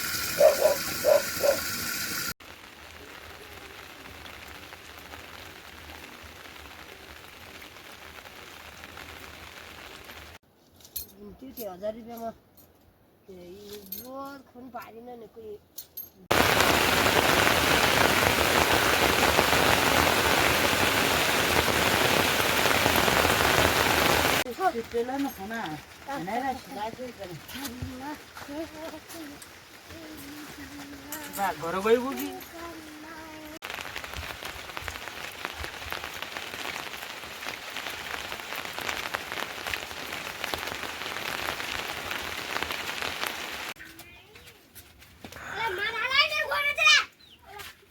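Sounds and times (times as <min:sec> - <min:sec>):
heavy rain falling: 0:00.0 - 0:10.4, 0:16.3 - 0:43.8.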